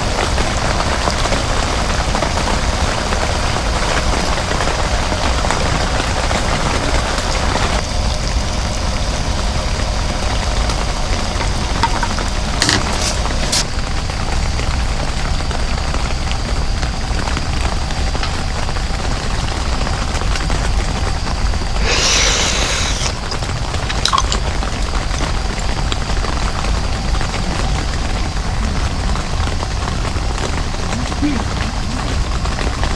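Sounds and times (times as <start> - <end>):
heavy rain hissing: 0.0 - 32.9
brighter hiss: 7.8 - 13.7, 21.7 - 25.3.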